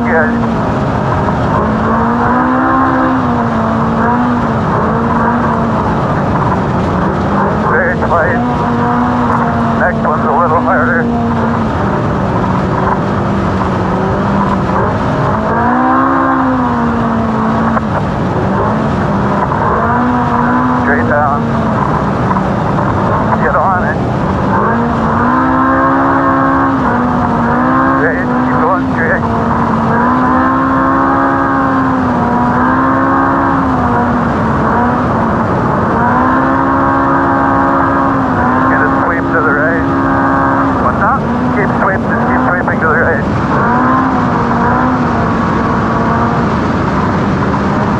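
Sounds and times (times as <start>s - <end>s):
race car engine running hard: 0.0s - 47.9s
wind and terrain noise: 0.0s - 47.9s.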